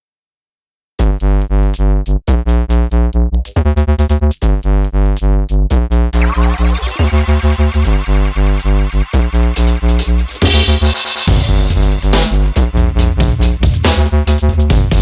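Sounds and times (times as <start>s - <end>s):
electronic music with pulsing bass: 6.2s - 15.0s.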